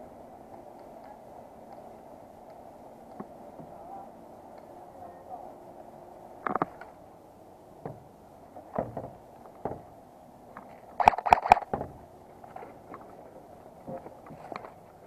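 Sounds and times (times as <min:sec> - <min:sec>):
knocks and rustles of movement: 0:07.8 - 0:15.0
airsoft gun firing: 0:11.0 - 0:11.7.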